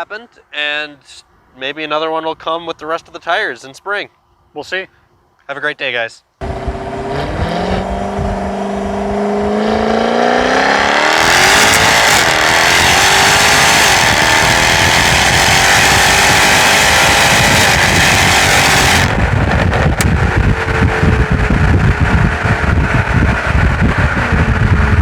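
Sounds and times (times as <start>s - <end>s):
car engine revving: 6.4s - 25.0s
loud rushing noise: 6.4s - 25.0s.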